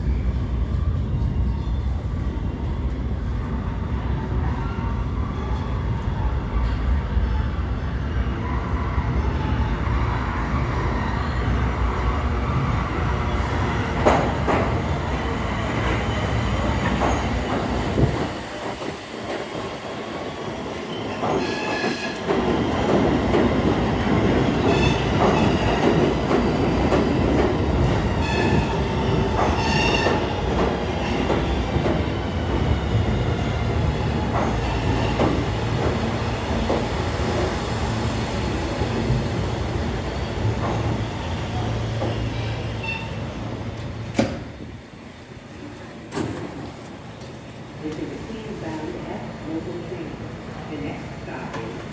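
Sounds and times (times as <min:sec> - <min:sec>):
subway train rumbling on rails: 0:00.0 - 0:51.9
train wheels squealing: 0:20.7 - 0:23.0, 0:28.1 - 0:30.4, 0:40.1 - 0:43.4.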